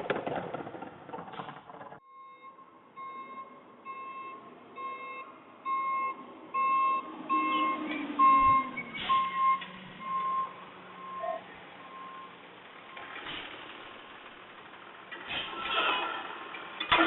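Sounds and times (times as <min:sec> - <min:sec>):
engine tone falling in pitch: 0:02.0 - 0:13.1
truck reversing alarm beeping: 0:02.0 - 0:13.2.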